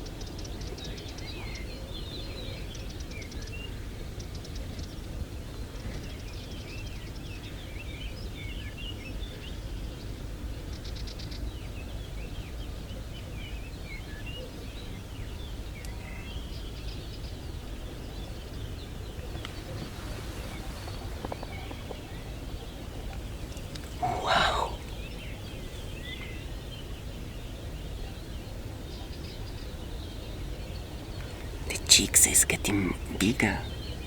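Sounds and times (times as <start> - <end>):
low background noise: 0.0 - 34.0
small birds chirping: 14.8 - 34.0.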